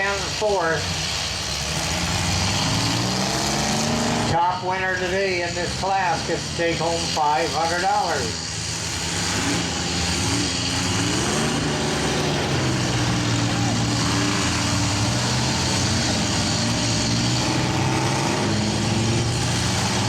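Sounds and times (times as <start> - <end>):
background engine din: 0.0 - 20.0
engines revving: 0.0 - 20.0.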